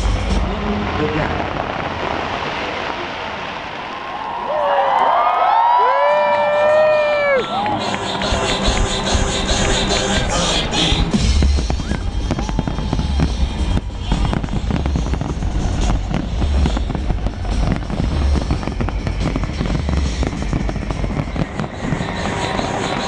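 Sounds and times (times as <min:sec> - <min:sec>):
fireworks cracking and banging: 0:00.0 - 0:23.0
music with pulsing bass beat: 0:07.5 - 0:23.0.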